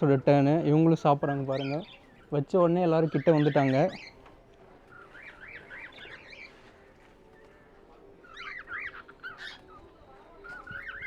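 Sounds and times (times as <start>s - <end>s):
parrots chattering: 1.2s - 4.2s, 4.9s - 6.9s, 8.1s - 11.0s.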